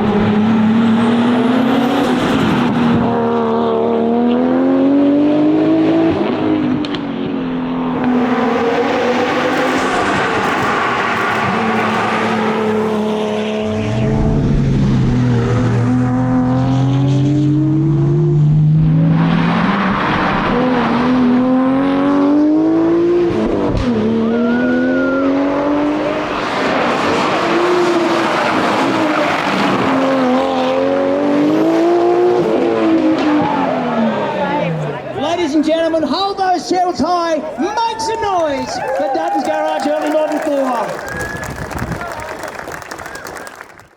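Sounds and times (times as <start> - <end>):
car engine revving through gears: 0.0 - 35.1.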